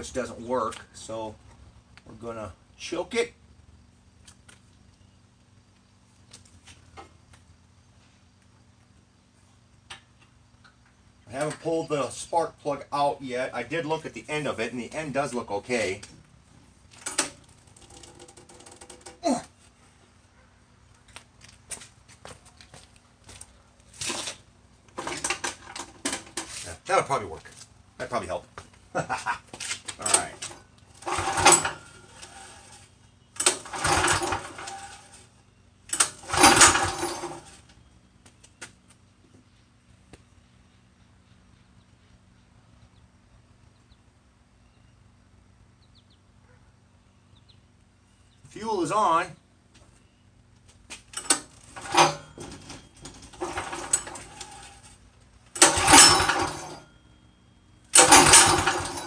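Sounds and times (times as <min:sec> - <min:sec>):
small engine pull-start cranking: 0:25.0 - 0:26.3, 0:30.0 - 0:35.2, 0:35.9 - 0:37.6, 0:51.2 - 0:56.9, 0:57.9 - 0:59.0
gritty grinding: 0:29.6 - 0:35.2, 0:35.9 - 0:37.6, 0:51.2 - 0:55.0, 0:55.6 - 0:56.9, 0:58.0 - 0:59.0.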